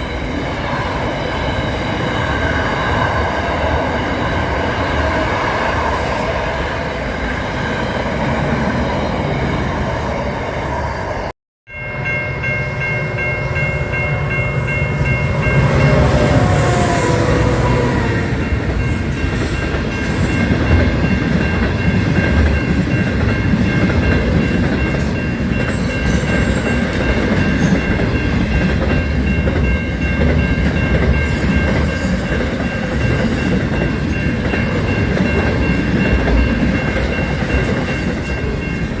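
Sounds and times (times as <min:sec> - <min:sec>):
train rumbling on rails: 0:00.0 - 0:39.0
steady high tones: 0:11.7 - 0:31.8.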